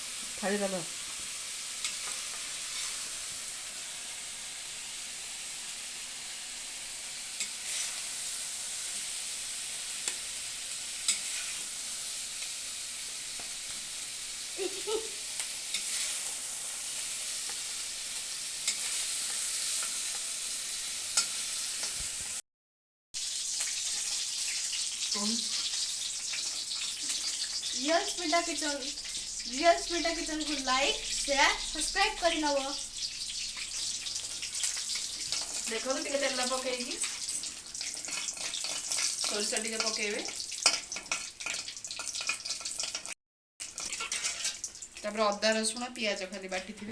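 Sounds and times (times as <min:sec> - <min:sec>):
chicken sizzling in oil: 0:00.0 - 0:22.4, 0:23.2 - 0:46.9
spatula clicking on pan: 0:37.0 - 0:43.1, 0:43.7 - 0:44.8.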